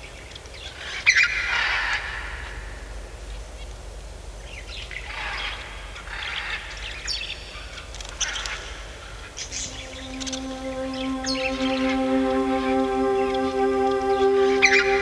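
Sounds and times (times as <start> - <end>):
sustained music chord: 9.5 - 15.0.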